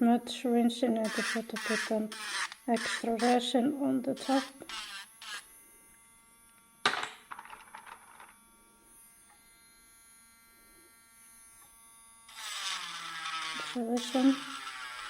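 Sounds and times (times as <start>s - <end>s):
electric sander whining: 1.0s - 3.5s, 4.2s - 6.6s, 8.8s - 15.0s
sander grinding resin: 1.0s - 5.6s, 9.0s - 15.0s.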